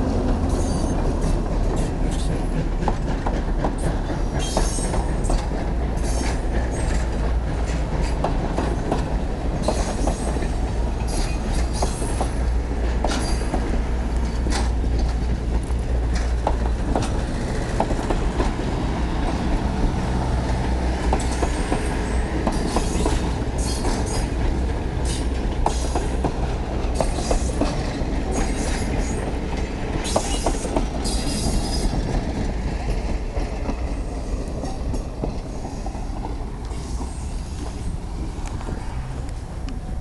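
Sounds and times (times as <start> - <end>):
train cars rumbling: 0.0 - 40.0
wheels clicking over rail joints: 0.1 - 39.8.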